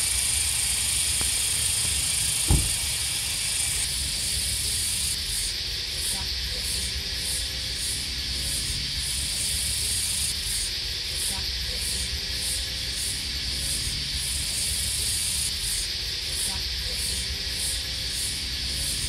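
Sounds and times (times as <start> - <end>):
cicadas buzzing: 0.0 - 19.0
short thump: 2.4 - 2.9.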